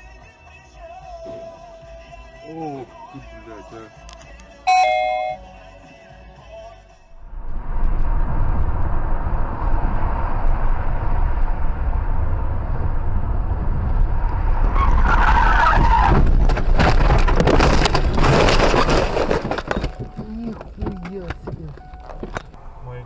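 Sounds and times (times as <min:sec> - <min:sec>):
car engine and road rumble: 0:06.5 - 0:23.0
tyres squealing under braking: 0:14.7 - 0:16.4
car collision crunching: 0:14.7 - 0:22.6.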